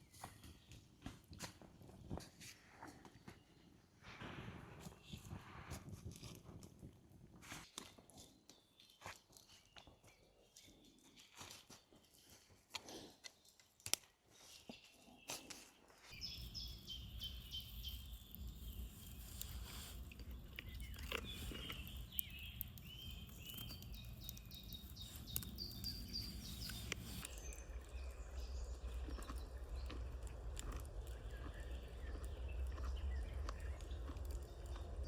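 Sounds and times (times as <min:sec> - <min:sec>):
small birds chirping: 0:07.6 - 0:35.0
low steady rumble: 0:24.0 - 0:35.0.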